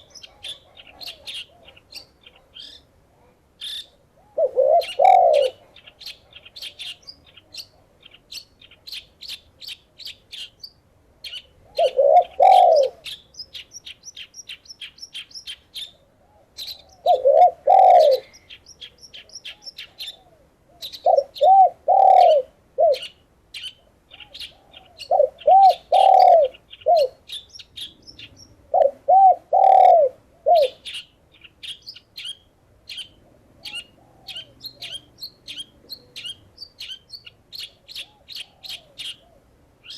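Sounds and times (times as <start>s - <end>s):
dove cooing: 0.0s - 7.8s, 11.6s - 13.2s, 16.2s - 23.2s, 24.1s - 31.0s, 32.9s - 36.4s, 37.6s - 39.9s
small birds chirping: 0.0s - 39.9s.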